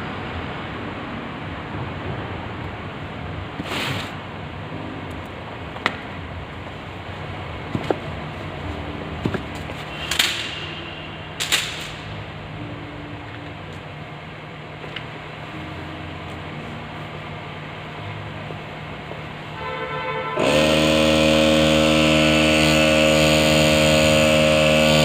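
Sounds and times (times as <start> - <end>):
steady low hum: 20.4 - 25.0.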